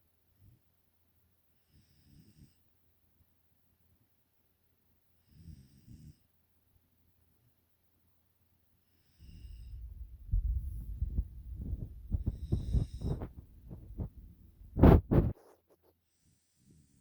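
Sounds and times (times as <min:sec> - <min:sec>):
puppy snoring: 0:11.6 - 0:14.1.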